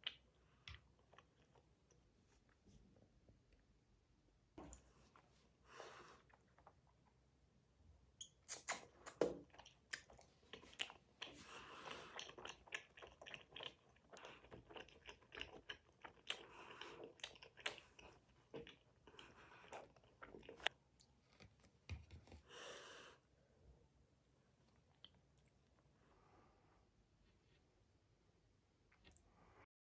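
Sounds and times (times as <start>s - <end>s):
person chewing gummy candy: 0.0s - 2.0s, 8.2s - 21.4s.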